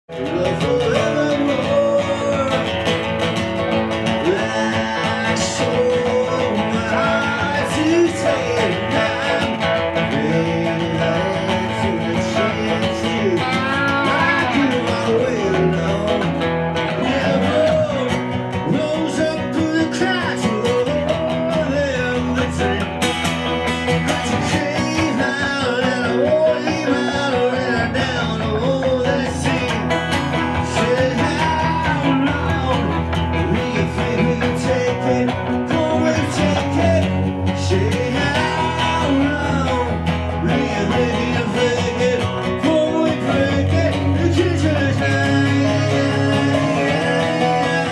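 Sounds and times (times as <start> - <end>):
person singing: 0.1 - 47.9
strummed guitars: 0.1 - 47.9.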